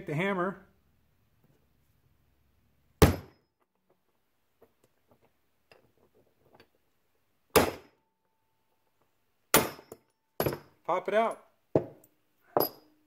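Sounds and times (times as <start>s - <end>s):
metallic ring: 12.5s - 13.0s.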